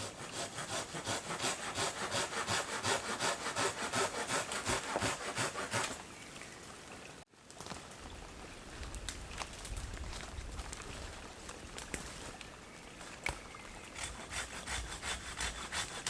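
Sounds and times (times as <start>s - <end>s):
hand saw cutting branch: 0.0s - 6.0s, 13.8s - 16.0s.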